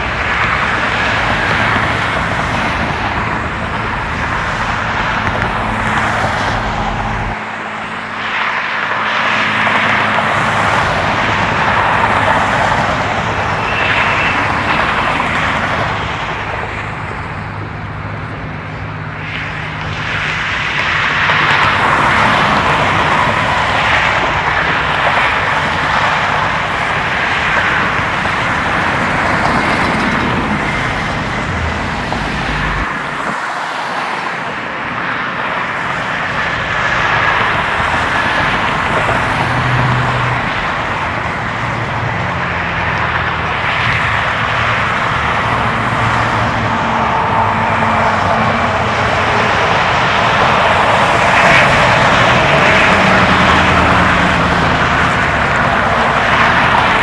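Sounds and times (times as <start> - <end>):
road traffic rushing: 0.0 - 57.0.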